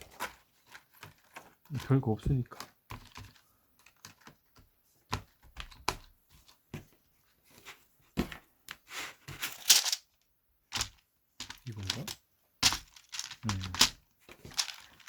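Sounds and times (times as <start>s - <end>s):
plastic scraping rattle: 2.6s - 4.3s, 10.8s - 15.0s
plastic keyboard parts clicking: 2.6s - 4.4s, 10.8s - 15.0s.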